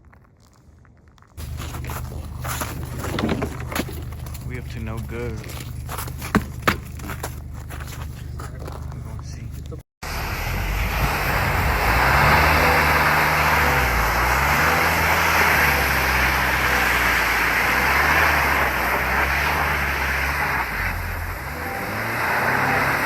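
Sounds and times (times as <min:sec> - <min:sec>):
engine revving: 0:10.0 - 0:23.0.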